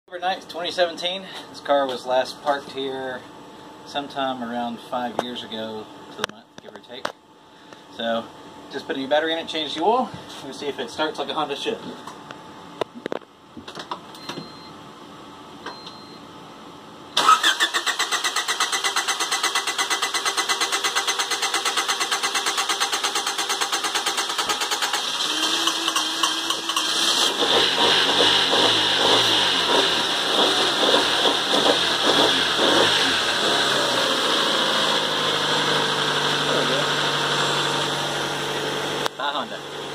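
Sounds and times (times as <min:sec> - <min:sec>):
starter motor cranking engine: 0:17.2 - 0:38.0
car engine running rough: 0:18.0 - 0:39.9.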